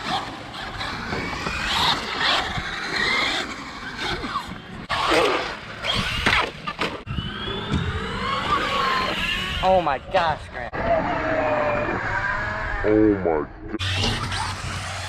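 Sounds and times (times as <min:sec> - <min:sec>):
electric motors whining: 0:00.0 - 0:09.7, 0:13.8 - 0:15.0.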